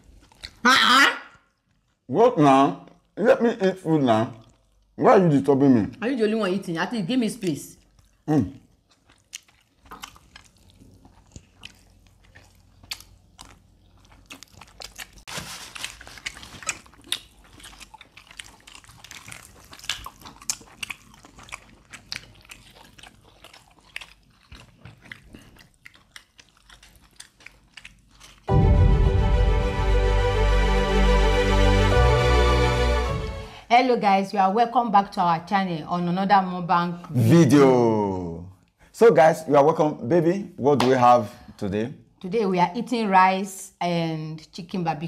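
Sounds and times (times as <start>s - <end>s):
biting and crunching chicken: 0.0s - 2.1s, 7.8s - 28.5s.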